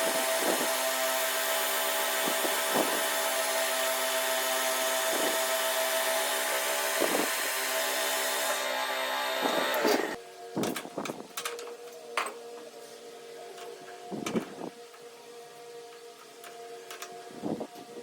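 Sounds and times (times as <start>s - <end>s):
power tool running: 0.0s - 10.2s.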